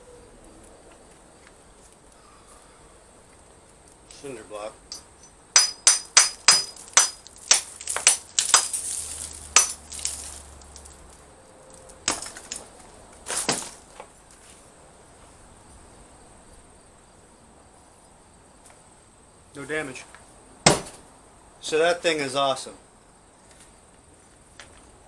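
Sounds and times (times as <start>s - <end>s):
metal blade chopping cinder block: 4.9s - 11.0s, 12.1s - 12.7s.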